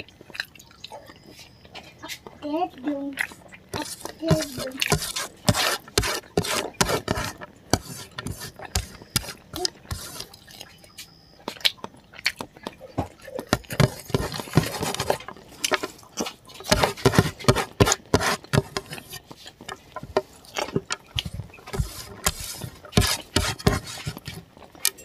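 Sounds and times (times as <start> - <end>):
wet chewing and lip smacking: 3.1 - 4.2, 8.5 - 13.8
hand scraping across a plate: 3.8 - 10.3, 13.5 - 15.3, 16.7 - 19.2, 21.1 - 24.4.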